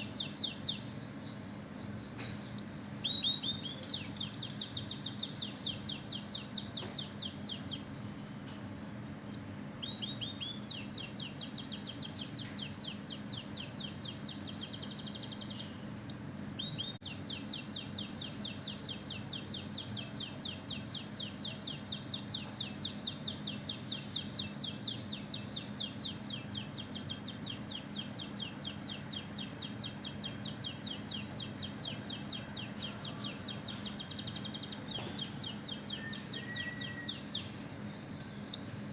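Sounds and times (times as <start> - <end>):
bird singing fast trills: 0.0 - 38.9
bird rising whistles: 35.8 - 37.4.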